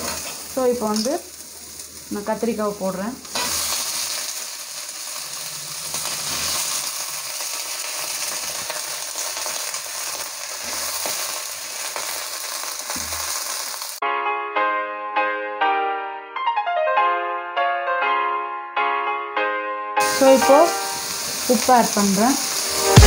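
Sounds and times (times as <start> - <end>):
vegetables sizzling in hot oil: 0.0 - 14.0, 20.0 - 23.0.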